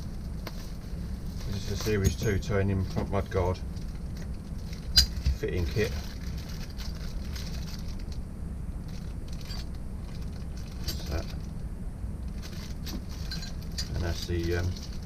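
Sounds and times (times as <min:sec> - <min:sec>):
steady low hum: 0:00.0 - 0:15.0
small metal fittings clinking: 0:12.4 - 0:15.0.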